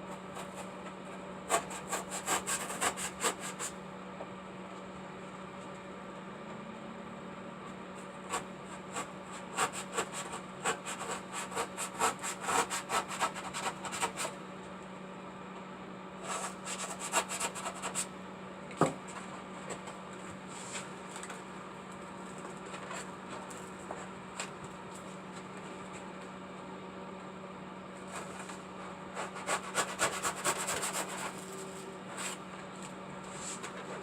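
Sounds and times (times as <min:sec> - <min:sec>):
steady low hum: 0:00.0 - 0:34.0
hand tool scraping: 0:29.2 - 0:32.4.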